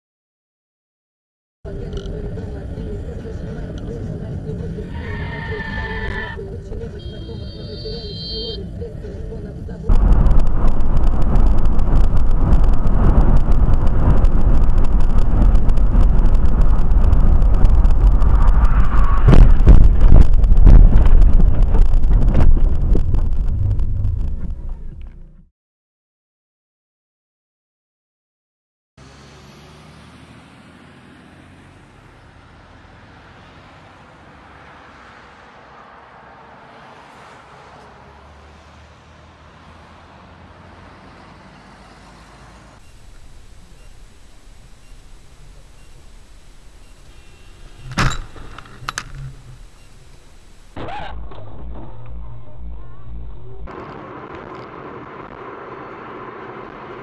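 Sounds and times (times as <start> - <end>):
car road and engine noise: 1.7 - 25.5, 29.0 - 57.0
sharp thump: 19.2 - 21.4, 47.8 - 52.2.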